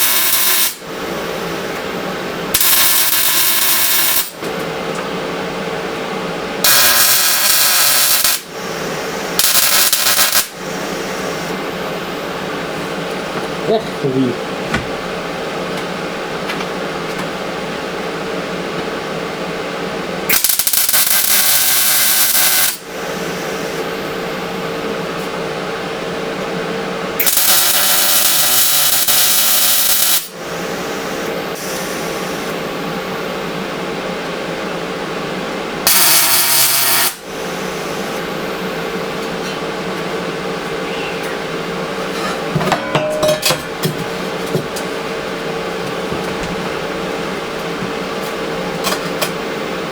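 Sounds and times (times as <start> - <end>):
electric welding crackle: 0.0 - 0.8, 2.5 - 4.4, 6.6 - 11.6, 20.3 - 22.8, 27.2 - 30.4, 35.9 - 37.2
steady machine hum: 0.0 - 49.9
metal clinks and knocks: 42.2 - 44.1.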